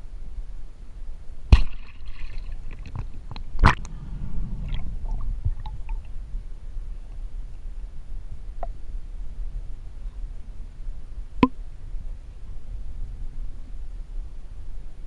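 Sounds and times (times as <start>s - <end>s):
muffled underwater rumble: 2.5s - 10.6s.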